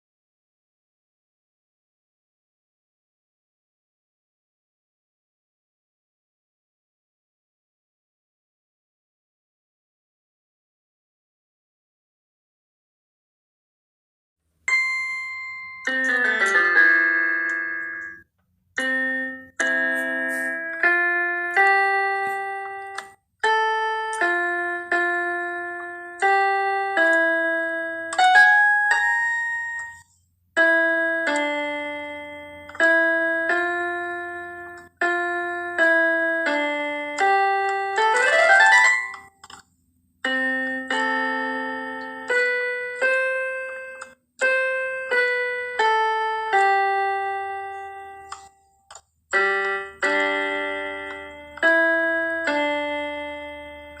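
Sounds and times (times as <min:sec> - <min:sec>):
piano chords: 0:14.7 - 0:48.5, 0:49.3 - 0:54.0
rising piano glissando: 0:30.6 - 0:39.3.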